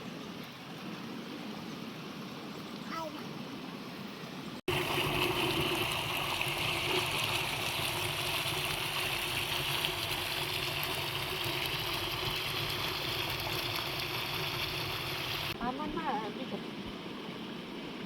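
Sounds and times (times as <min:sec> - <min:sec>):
flowing water rushing: 0:04.7 - 0:18.0.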